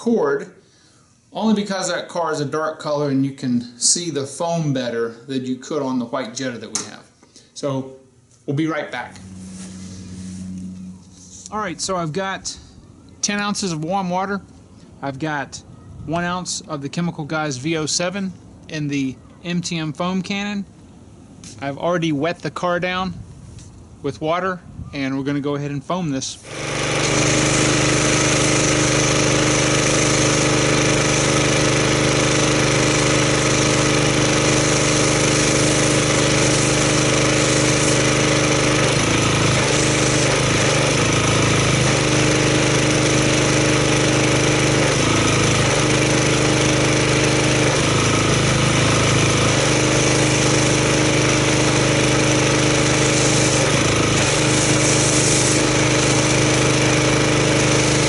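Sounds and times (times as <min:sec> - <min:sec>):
pressure washer engine running: 0:08.9 - 0:12.6, 0:26.4 - 0:58.0
hissing foam spray: 0:26.4 - 0:58.0.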